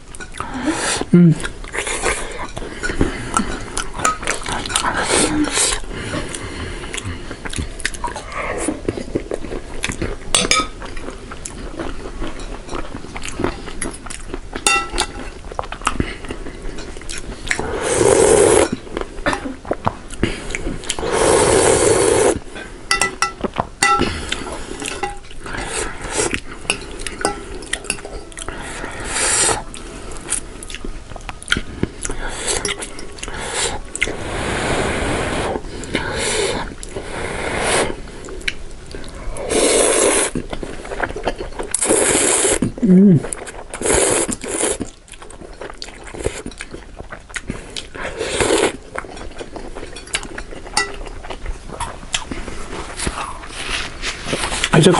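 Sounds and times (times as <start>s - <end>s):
chewing: 0.1s - 21.1s, 21.9s - 34.2s, 37.9s - 54.9s
slurping noodles: 17.6s - 18.8s, 20.9s - 22.4s, 28.5s - 29.7s, 32.2s - 38.1s, 39.3s - 41.0s, 41.7s - 45.0s, 47.4s - 48.8s.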